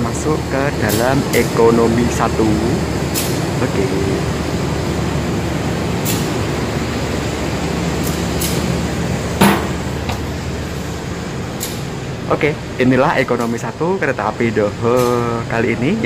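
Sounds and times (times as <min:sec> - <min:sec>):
diesel train idling drone: 0:00.0 - 0:16.0
sharp knocks: 0:09.4 - 0:10.3.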